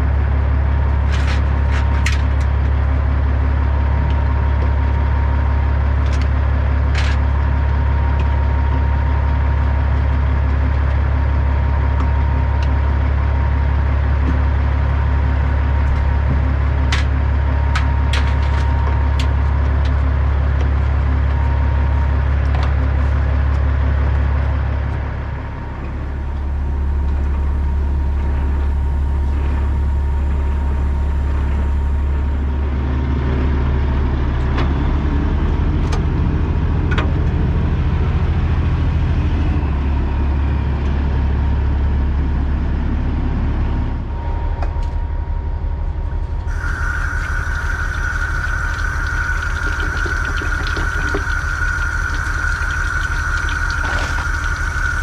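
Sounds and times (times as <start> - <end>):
truck diesel engine running: 0.0 - 44.6, 45.3 - 55.0
road noise: 46.4 - 55.0
steady high tone: 46.5 - 55.0.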